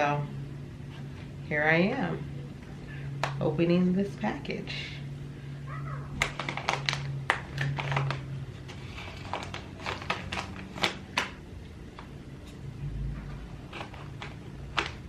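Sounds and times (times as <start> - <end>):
packaging crinkling: 6.2 - 11.4, 13.6 - 15.0.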